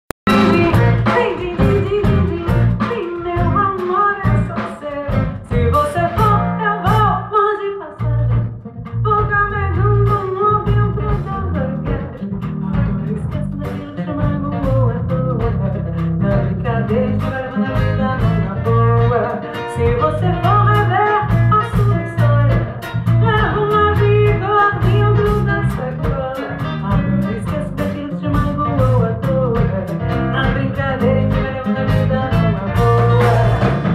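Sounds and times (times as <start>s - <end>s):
live band music: 0.2s - 33.9s
person singing: 9.1s - 33.9s.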